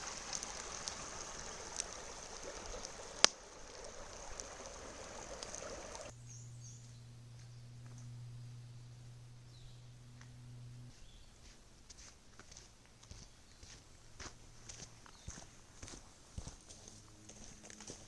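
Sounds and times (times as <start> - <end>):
stream water rushing: 0.0 - 6.1
small ticks: 0.3 - 6.2
faint low hum: 4.7 - 18.0.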